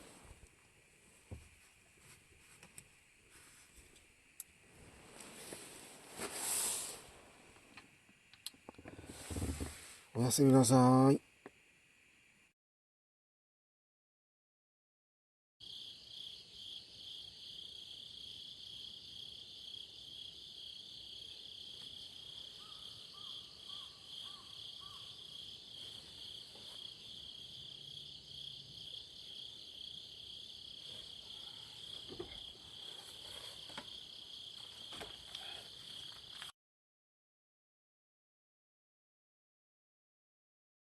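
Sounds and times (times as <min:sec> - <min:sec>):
crickets trilling: 0:15.6 - 0:36.5.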